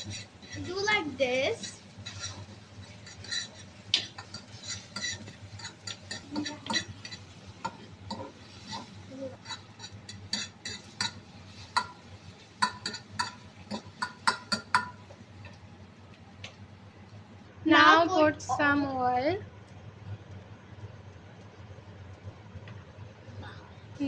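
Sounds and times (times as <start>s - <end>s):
spatula scraping frying pan: 0.0s - 15.0s.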